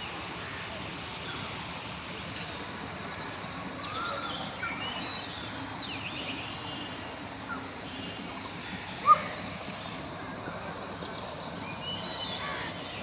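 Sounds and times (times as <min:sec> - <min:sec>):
birds chirping and twittering: 0:00.0 - 0:13.0
steady background hiss: 0:00.0 - 0:13.0.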